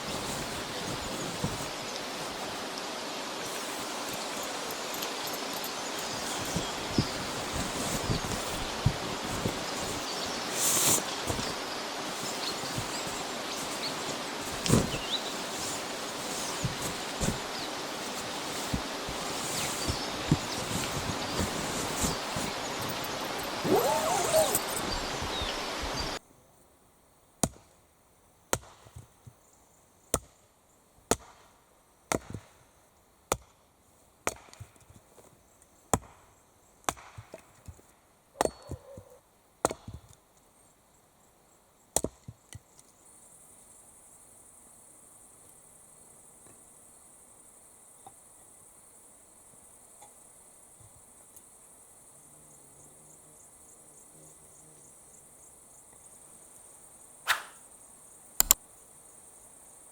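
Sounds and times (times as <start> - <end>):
insect chirring: 3.4 - 26.2
wood being chopped: 33.3 - 33.5, 35.9 - 36.2, 36.9 - 37.4, 39.6 - 40.0, 42.0 - 42.3, 57.3 - 57.6.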